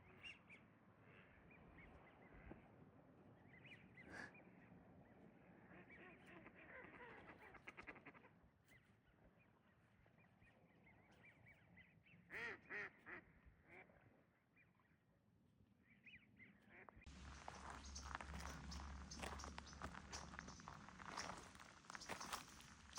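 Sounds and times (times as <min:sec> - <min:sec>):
distant waterfowl calling: 0:16.7 - 0:22.9.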